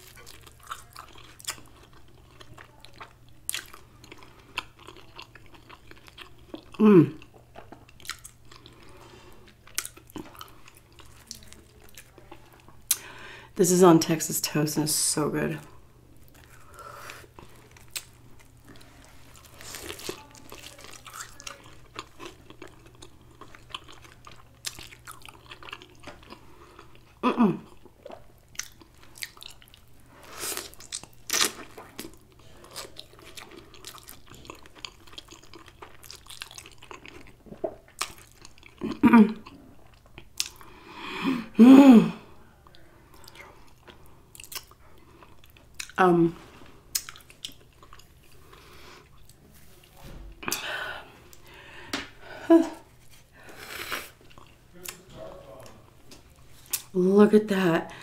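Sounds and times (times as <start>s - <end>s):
person chewing a sandwich: 0.0s - 13.1s, 16.0s - 40.9s, 42.4s - 57.0s
person humming: 6.8s - 7.2s.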